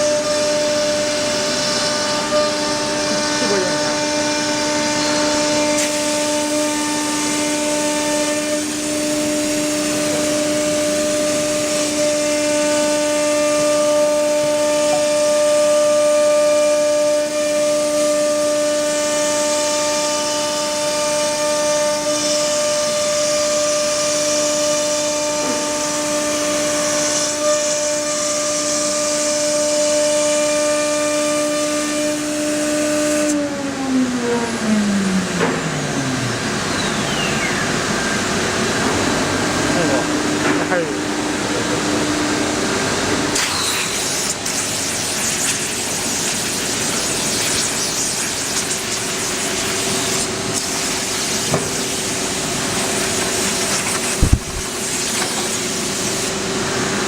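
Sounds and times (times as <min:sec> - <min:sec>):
router spindle whining: 0:00.0 - 0:17.7.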